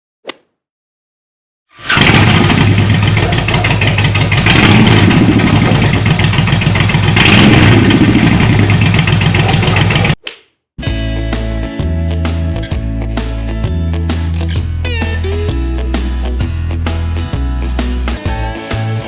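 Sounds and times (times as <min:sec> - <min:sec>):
motorcycle engine revving: 0:01.8 - 0:10.2.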